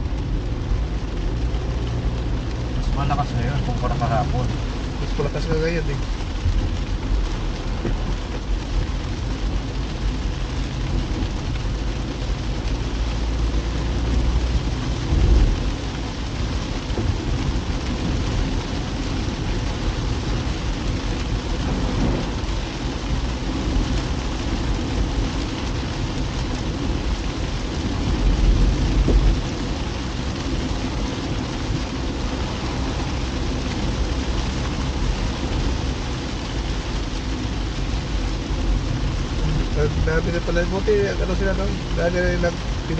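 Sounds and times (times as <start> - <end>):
car driving on wet road: 0.0 - 42.9
heavy rain hissing: 0.0 - 42.9.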